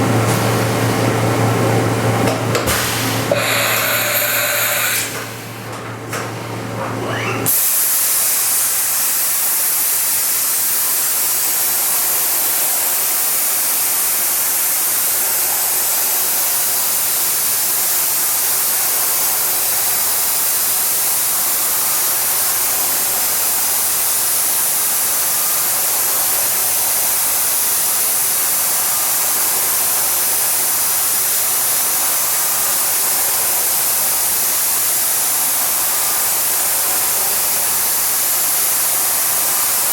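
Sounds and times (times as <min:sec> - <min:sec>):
machining center running: 0:00.0 - 0:07.7.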